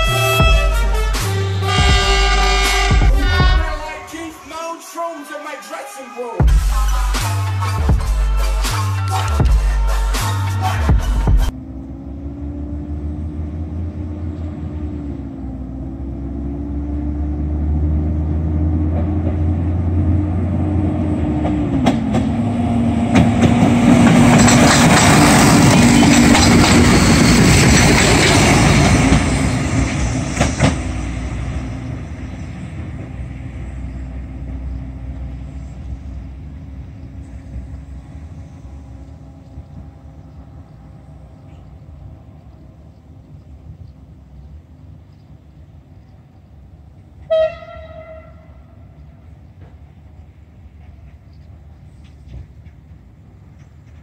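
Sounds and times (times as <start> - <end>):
diesel train engine drone: 0.0 - 54.0
wheels clattering on rails: 21.4 - 33.3, 49.4 - 54.0.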